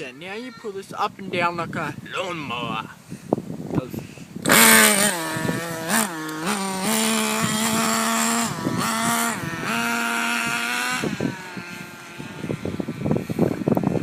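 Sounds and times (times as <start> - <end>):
small two-stroke engine buzzing: 4.4 - 14.0.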